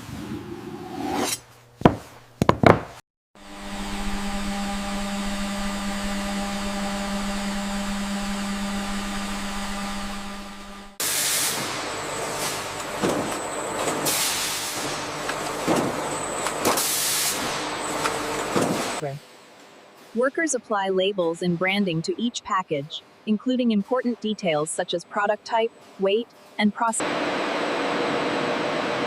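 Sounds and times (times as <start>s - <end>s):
loud industrial noise: 3.4s - 19.2s, 27.0s - 29.0s
machine hum: 3.4s - 20.1s, 27.0s - 29.0s.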